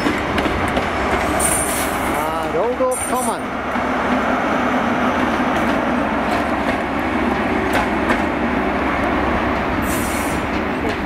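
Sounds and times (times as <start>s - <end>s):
train rumble: 0.0s - 11.0s
wheels clicking over rail joints: 5.2s - 11.0s.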